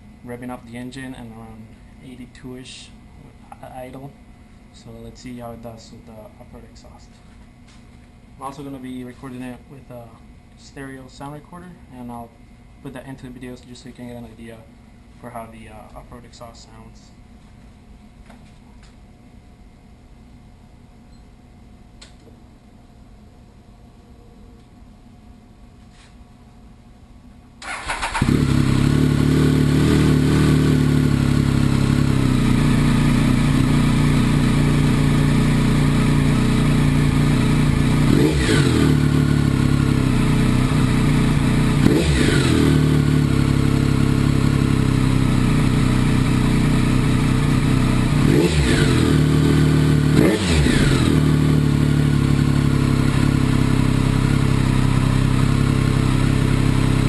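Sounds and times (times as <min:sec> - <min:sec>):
motorcycle engine idling: 0:27.6 - 0:57.0.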